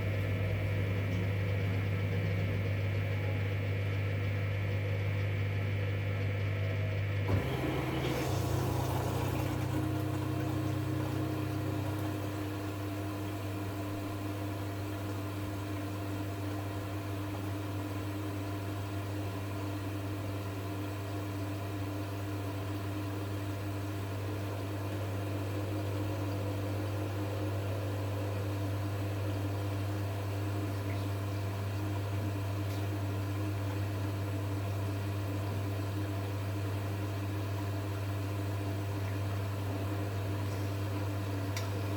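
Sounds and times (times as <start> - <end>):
washing machine humming: 0.0 - 41.9
washing machine click: 7.3 - 13.6.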